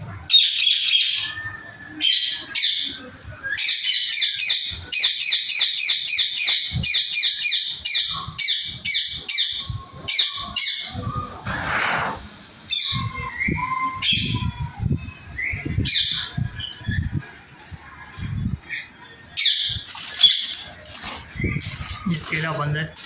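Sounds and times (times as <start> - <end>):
small birds chirping: 0.0 - 23.0
brief rushing noise: 11.3 - 12.4.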